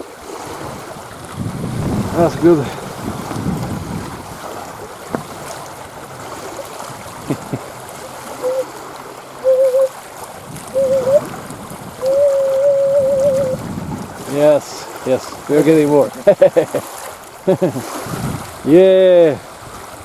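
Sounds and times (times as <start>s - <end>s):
water on a shoreline: 0.0s - 20.0s
wind: 0.0s - 20.0s
wavering whistle-like tone: 8.4s - 8.7s, 9.4s - 9.9s, 10.7s - 11.3s, 12.0s - 13.6s.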